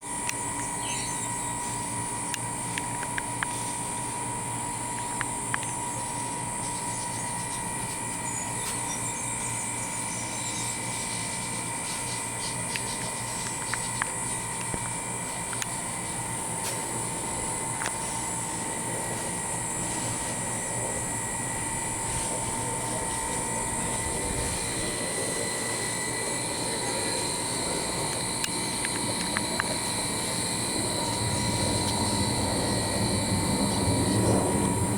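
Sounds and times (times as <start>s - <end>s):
jet airliner flying over: 15.8s - 34.9s.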